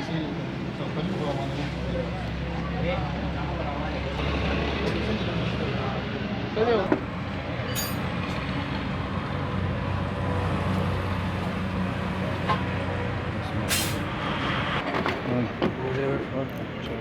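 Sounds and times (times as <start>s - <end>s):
short sharp hiss: 13.7s - 14.1s.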